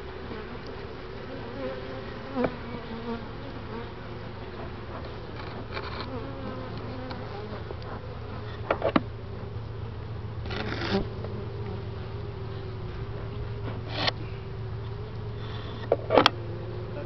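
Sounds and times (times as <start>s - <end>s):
bees buzzing: 0.0s - 17.0s
noisy rustle: 8.3s - 11.2s.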